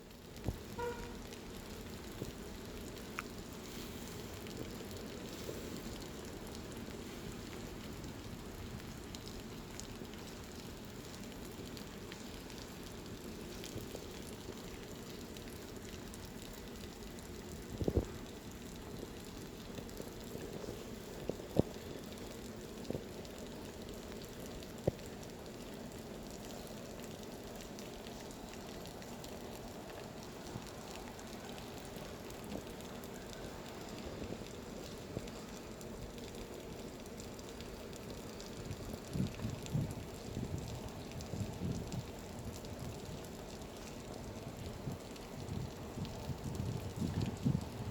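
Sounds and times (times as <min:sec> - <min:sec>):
rain pattering on surfaces: 0:00.0 - 0:47.9.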